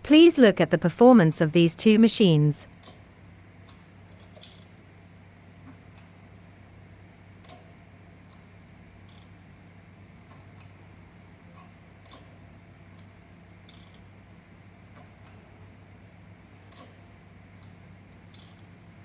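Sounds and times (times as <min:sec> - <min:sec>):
sewing mechanism clicks and ticks: 0:02.6 - 0:19.0.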